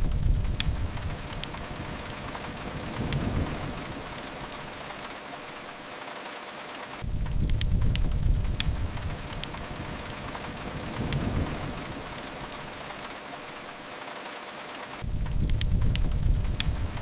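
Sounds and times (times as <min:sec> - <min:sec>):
low rumble: 0:00.0 - 0:05.0, 0:07.0 - 0:13.0, 0:15.0 - 0:17.0
rain hiss: 0:00.0 - 0:17.0
wood fire crackling: 0:00.0 - 0:17.0.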